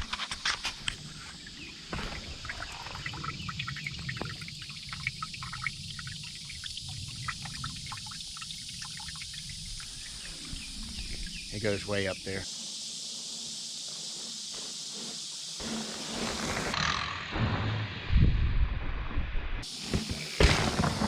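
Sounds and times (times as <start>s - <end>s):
water trickling and splashing: 0.6s - 12.5s.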